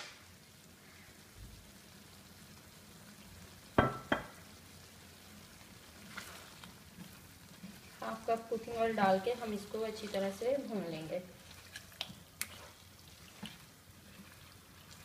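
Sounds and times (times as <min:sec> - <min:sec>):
food sizzling in a wok: 0:00.0 - 0:15.0
spatula knocking against pan: 0:03.8 - 0:04.3.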